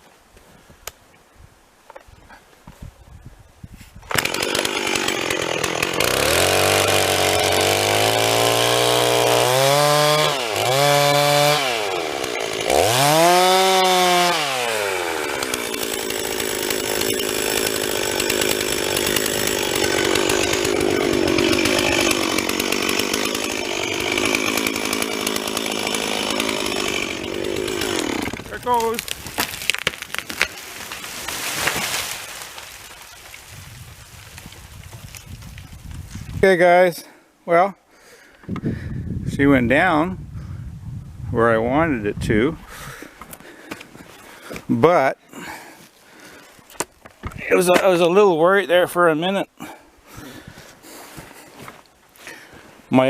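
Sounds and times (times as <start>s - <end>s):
chainsaw revving and cutting: 4.1s - 33.8s.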